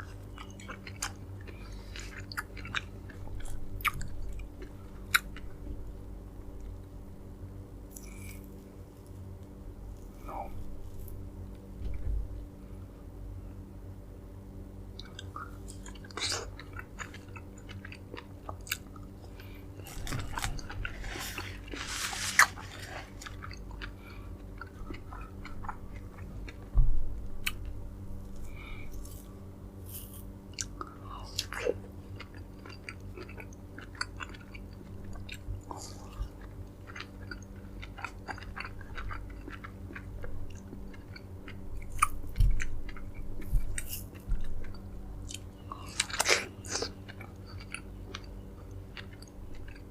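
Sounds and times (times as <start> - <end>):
chewing fruit: 0.0 - 5.6, 15.0 - 26.7, 27.4 - 49.9
faint steady hum: 0.0 - 49.9.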